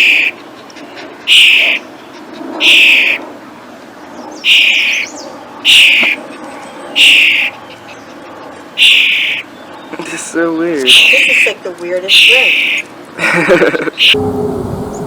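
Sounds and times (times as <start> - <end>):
bird harsh hoarse call: 0.0 - 3.2, 4.4 - 6.2, 7.0 - 8.1, 8.8 - 9.6, 10.9 - 12.9.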